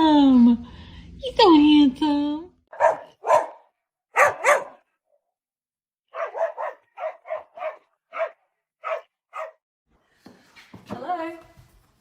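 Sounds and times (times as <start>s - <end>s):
dog barking: 2.7s - 4.9s, 6.1s - 9.6s.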